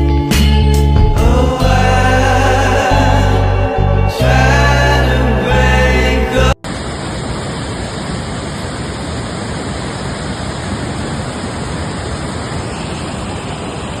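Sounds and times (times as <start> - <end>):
rushing river water: 6.7 - 14.0.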